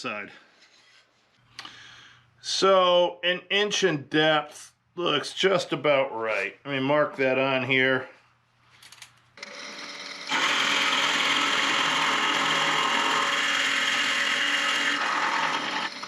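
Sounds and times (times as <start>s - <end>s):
tool cutting spinning wood: 9.4s - 16.0s
wood lathe running: 9.4s - 16.0s.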